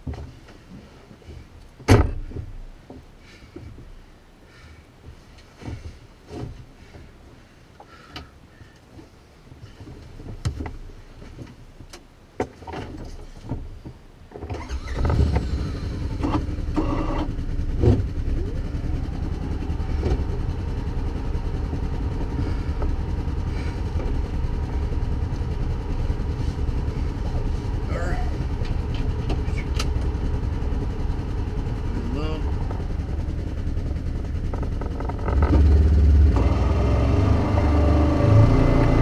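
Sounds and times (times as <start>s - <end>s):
vehicle engine starting and idling: 14.5s - 39.0s.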